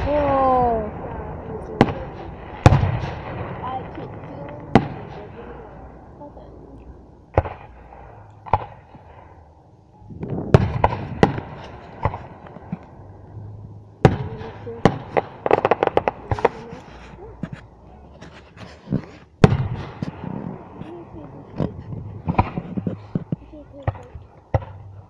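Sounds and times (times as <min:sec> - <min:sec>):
firework crackles: 0:00.0 - 0:06.4, 0:14.0 - 0:17.6, 0:18.3 - 0:24.8
firework shells bursting: 0:14.0 - 0:16.8.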